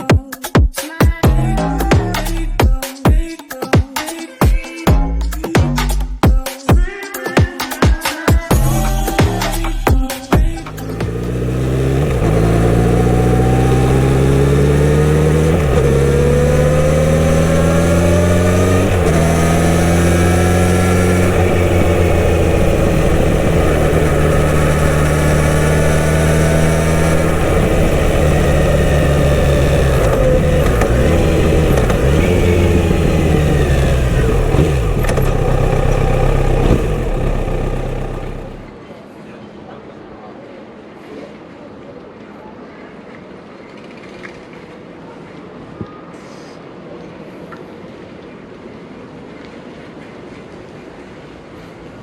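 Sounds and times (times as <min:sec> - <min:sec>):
motorcycle engine accelerating: 0:08.6 - 0:38.8.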